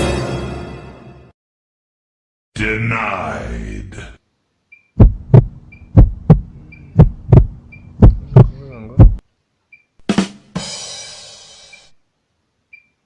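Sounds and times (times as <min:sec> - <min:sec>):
steady low hum: 0:02.6 - 0:09.2
heartbeat thumps: 0:05.0 - 0:09.2.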